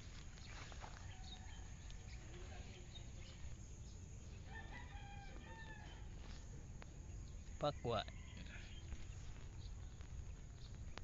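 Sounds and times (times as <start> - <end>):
distant bird calls: 0.0 - 11.0.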